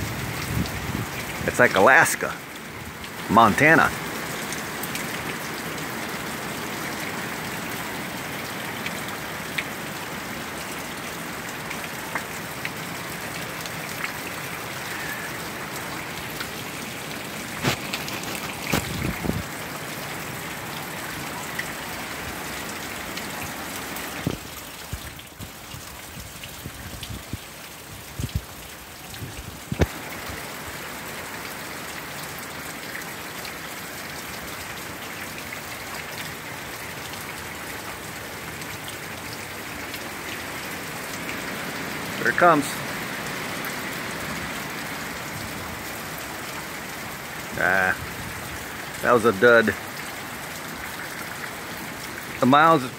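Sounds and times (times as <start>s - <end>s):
heavy rain splashing: 0.0s - 52.9s.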